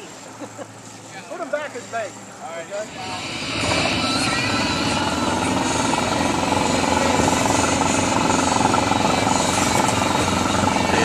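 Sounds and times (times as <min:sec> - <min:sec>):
outboard motor puttering: 0:02.8 - 0:11.0.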